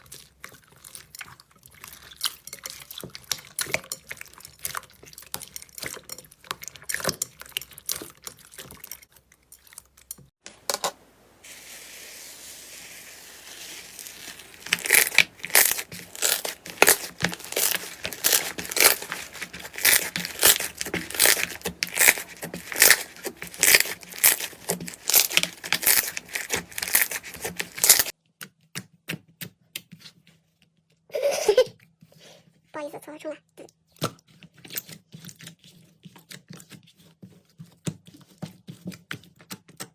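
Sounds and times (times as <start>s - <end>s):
slime crackling and popping: 12.1s - 28.1s.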